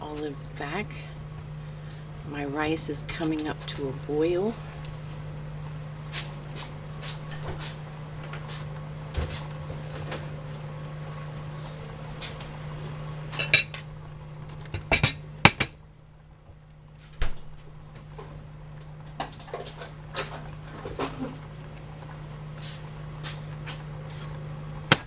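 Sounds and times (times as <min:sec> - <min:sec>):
steady low hum: 0:00.0 - 0:25.0
pots and dishes clattering: 0:13.4 - 0:13.8, 0:14.7 - 0:15.7.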